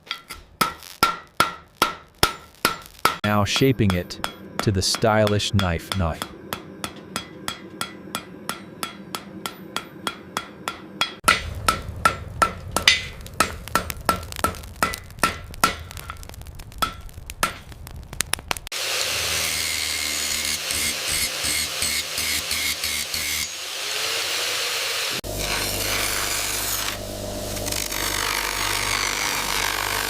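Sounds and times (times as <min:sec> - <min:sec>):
hammer striking steel on anvil: 0:00.0 - 0:16.0, 0:19.0 - 0:23.4
low hum: 0:03.2 - 0:18.6.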